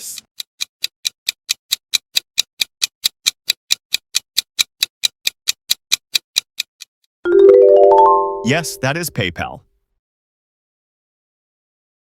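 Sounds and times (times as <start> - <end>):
fast clock ticking: 0.0 - 6.9.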